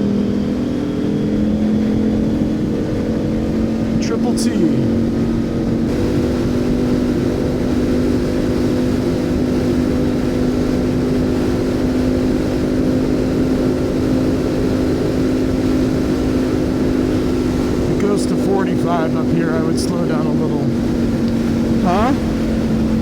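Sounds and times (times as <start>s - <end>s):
motorcycle engine cruising: 0.0s - 23.0s
wind and road rumble: 0.0s - 23.0s.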